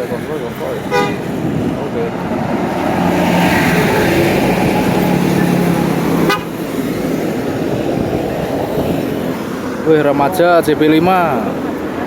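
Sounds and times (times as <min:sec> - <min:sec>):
engine and traffic noise: 0:00.0 - 0:12.0
bus horn long note: 0:00.9 - 0:01.3, 0:06.2 - 0:06.6.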